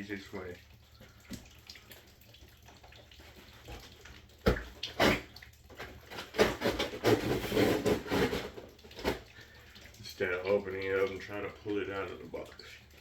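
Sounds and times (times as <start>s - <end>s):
cardboard scraping and rustling: 5.8s - 9.2s.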